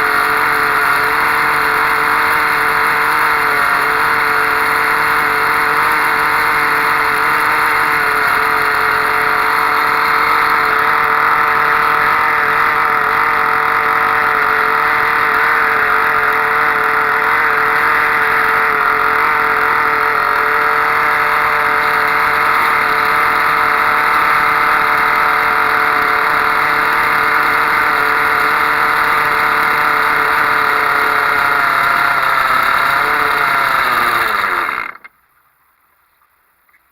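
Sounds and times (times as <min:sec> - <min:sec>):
small model engine running: 0:00.0 - 0:35.1.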